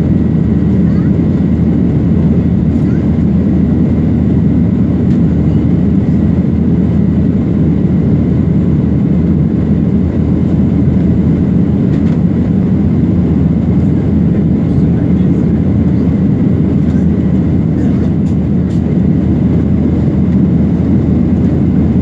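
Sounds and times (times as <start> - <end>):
airplane engines rumbling: 0.0 - 22.0.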